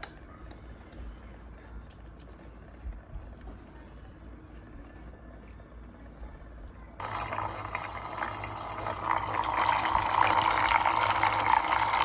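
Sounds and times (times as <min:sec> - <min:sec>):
appliance motor hum: 0:07.0 - 0:12.0
churning water: 0:07.0 - 0:12.0.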